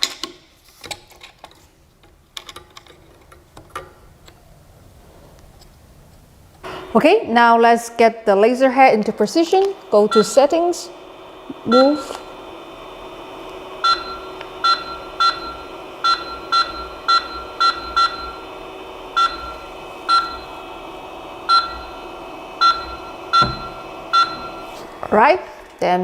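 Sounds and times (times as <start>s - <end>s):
steady hum: 4.0s - 26.0s
short high beeps: 13.8s - 18.4s, 22.6s - 24.7s.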